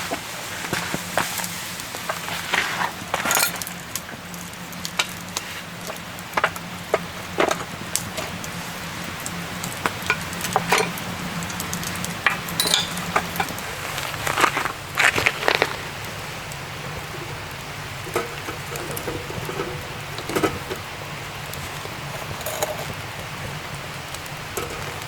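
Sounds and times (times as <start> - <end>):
food sizzling in a pan: 0.0 - 25.0
utensils clinking on cookware: 3.2 - 3.6, 10.0 - 11.0, 12.2 - 14.3, 16.9 - 20.9, 21.5 - 23.0, 24.5 - 25.0.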